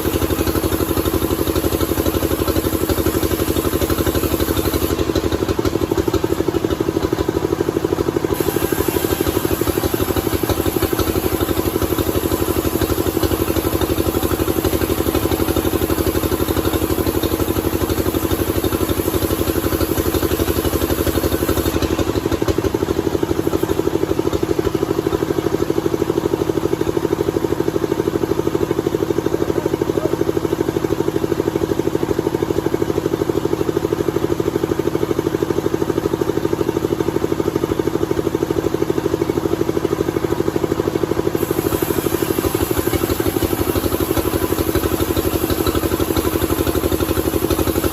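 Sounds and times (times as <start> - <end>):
sawmill engine running: 0.0 - 47.9
high hiss: 8.3 - 21.9, 41.4 - 47.9.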